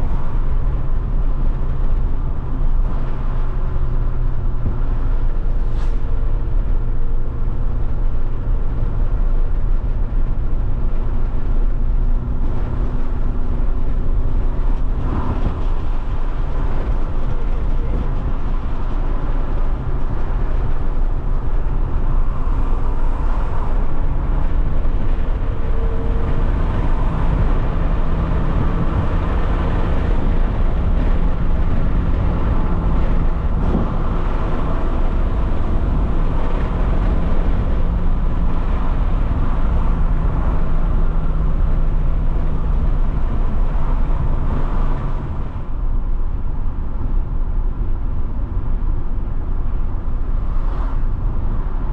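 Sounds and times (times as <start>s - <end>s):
car engine running: 0.0s - 51.9s
tyre and road noise: 0.0s - 51.9s.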